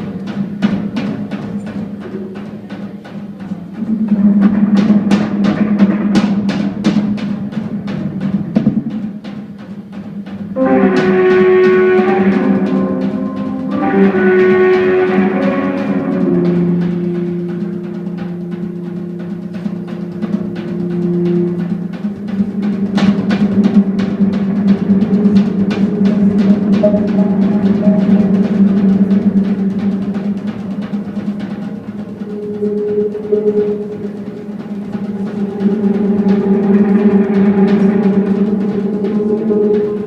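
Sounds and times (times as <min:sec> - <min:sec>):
drums playing busy strokes: 0:00.0 - 0:40.0
jazz-rock band playing: 0:10.6 - 0:40.0
organ and bass notes: 0:10.6 - 0:40.0.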